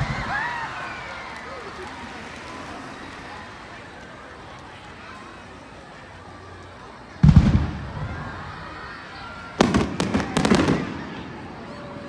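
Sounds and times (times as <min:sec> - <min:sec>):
firework bangs and crackles: 0:00.0 - 0:04.0, 0:07.2 - 0:08.8, 0:09.4 - 0:12.0
firework deep boom: 0:07.2 - 0:08.4, 0:09.6 - 0:11.3.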